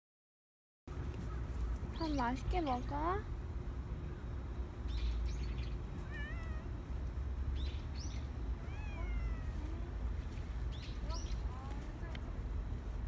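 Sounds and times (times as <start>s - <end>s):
cat meowing: 6.0s - 6.8s, 8.6s - 9.8s.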